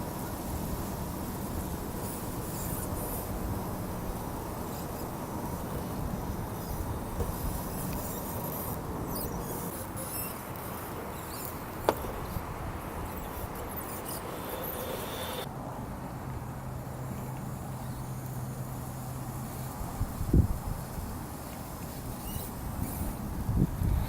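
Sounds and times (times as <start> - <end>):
rc car drive whine: 0.0 - 15.5, 21.8 - 24.0.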